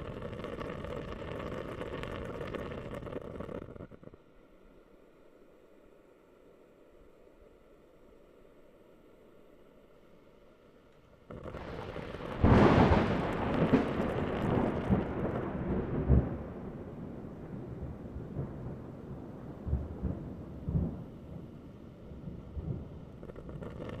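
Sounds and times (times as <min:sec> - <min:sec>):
thunder rolling: 0:00.0 - 0:03.8, 0:11.3 - 0:24.0.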